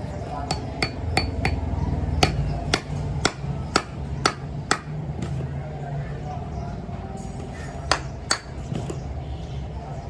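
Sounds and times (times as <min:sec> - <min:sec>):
metal being struck: 0:00.5 - 0:04.9.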